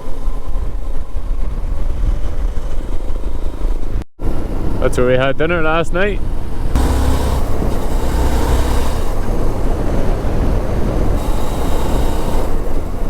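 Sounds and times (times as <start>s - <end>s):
wind rush over microphone: 0.0s - 13.0s
motorcycle engine rumble: 5.8s - 13.0s.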